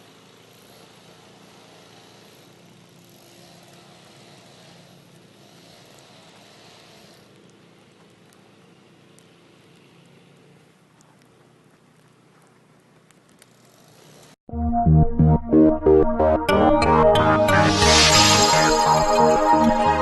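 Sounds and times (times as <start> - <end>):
outdoor street noise: 0.0 - 14.4, 16.8 - 20.0
faint engine hum: 2.0 - 14.4
faint ticks: 9.1 - 14.3.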